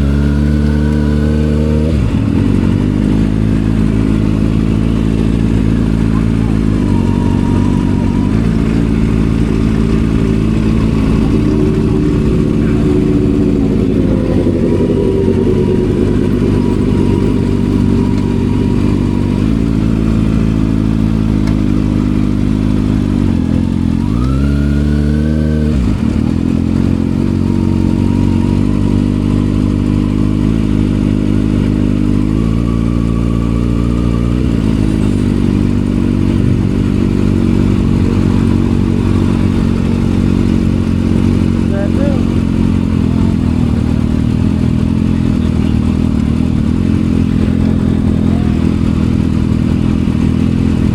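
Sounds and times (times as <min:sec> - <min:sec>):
motorcycle engine revving: 0:00.0 - 0:50.9
motorcycle engine running: 0:00.0 - 0:50.9.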